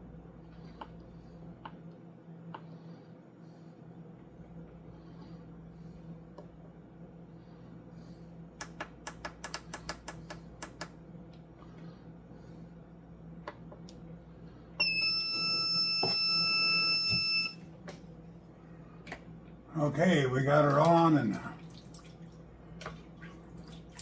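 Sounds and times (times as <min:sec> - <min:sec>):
low appliance hum: 0:00.0 - 0:24.0
slow cooker long electronic beep: 0:14.7 - 0:17.7.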